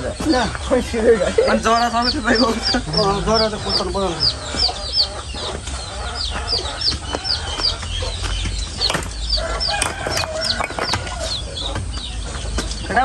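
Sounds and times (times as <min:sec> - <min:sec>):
bird chirping: 0:00.0 - 0:13.0
digging bar knocks and scrapes: 0:08.9 - 0:11.4.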